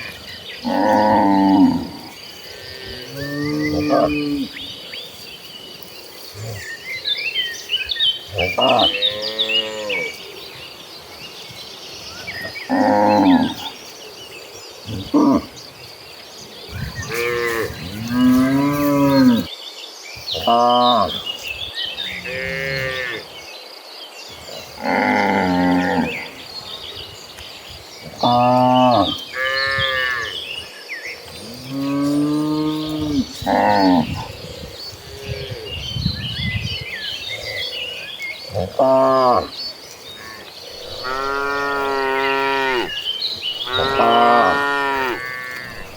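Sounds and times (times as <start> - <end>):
small birds chirping: 0.0 - 45.9
cattle mooing: 31.6 - 34.2, 40.2 - 43.0, 43.6 - 45.9.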